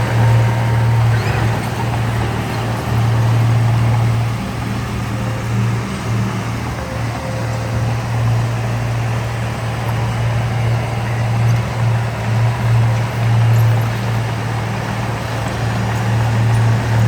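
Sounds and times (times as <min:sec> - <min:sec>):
heavy diesel engine droning: 0:00.0 - 0:17.0.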